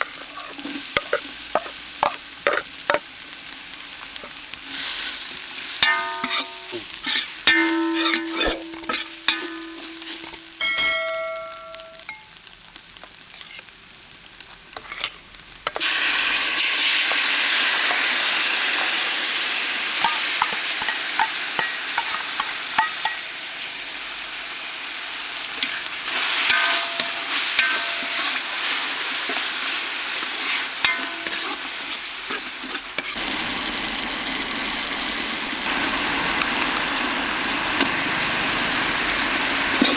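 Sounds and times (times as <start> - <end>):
metal utensils clinking on pan: 0.0 - 3.0, 5.5 - 12.4, 14.8 - 15.9, 20.0 - 23.7, 25.4 - 33.2
food sizzling in hot oil: 0.0 - 39.9
stirring clicks and scrapes: 26.5 - 33.2.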